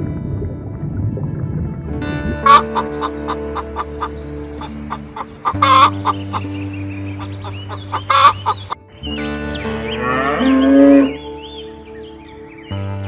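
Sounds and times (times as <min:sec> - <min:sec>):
background music: 0:00.0 - 0:13.0
chicken clucking: 0:02.5 - 0:08.8
chicken squawks: 0:02.5 - 0:08.8
cow mooing: 0:10.0 - 0:11.2.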